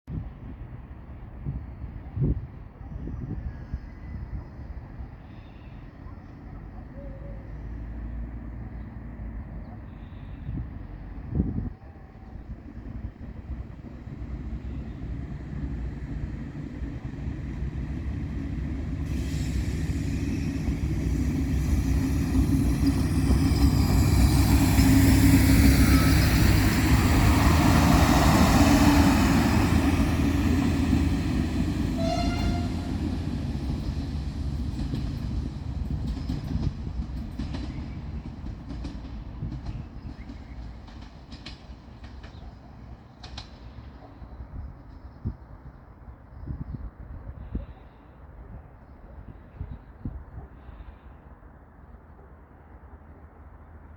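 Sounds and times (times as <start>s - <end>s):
train engine and wheels passing: 3.9s - 47.1s
train horn note: 31.8s - 33.2s.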